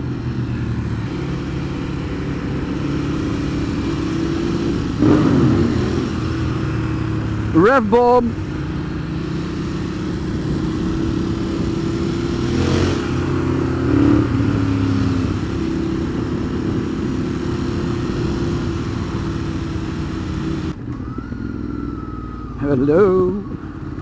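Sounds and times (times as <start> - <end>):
motorcycle engine running: 0.0 - 24.0
rushing wind noise: 8.4 - 20.9.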